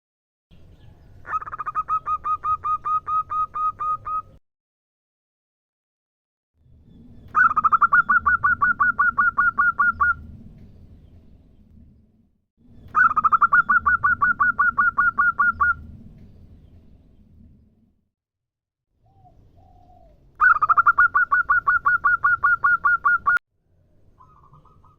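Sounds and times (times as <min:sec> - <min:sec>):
low rumble: 0:09.7 - 0:13.0, 0:15.5 - 0:18.1.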